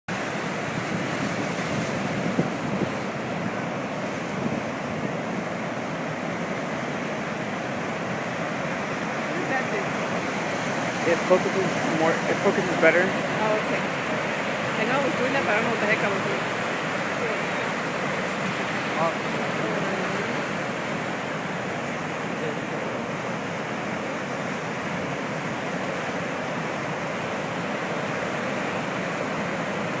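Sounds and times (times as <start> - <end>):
ocean surf breaking: 0.1 - 30.0
wind buffeting microphone: 0.3 - 17.1.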